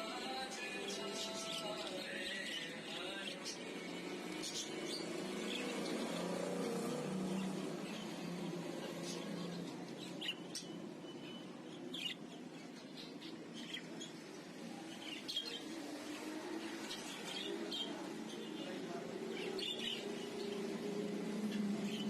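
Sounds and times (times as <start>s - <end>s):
small birds chirping: 0.0s - 22.0s
low background murmur: 1.3s - 22.0s.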